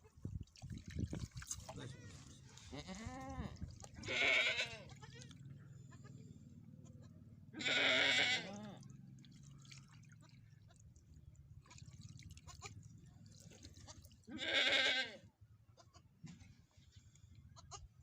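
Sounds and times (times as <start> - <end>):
farm animal bleating: 1.8 - 8.9, 12.4 - 12.8, 13.8 - 16.2, 17.4 - 18.0.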